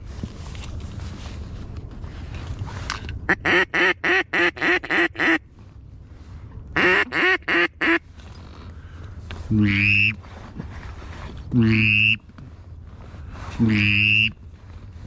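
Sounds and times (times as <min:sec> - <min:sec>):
duck call quacks: 0:03.3 - 0:05.4, 0:06.8 - 0:08.0, 0:09.6 - 0:10.2, 0:11.6 - 0:12.2, 0:13.6 - 0:14.4.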